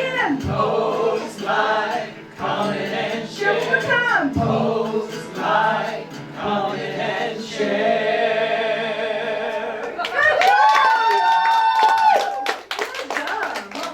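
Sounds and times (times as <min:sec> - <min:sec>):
people singing: 0:00.0 - 0:10.0.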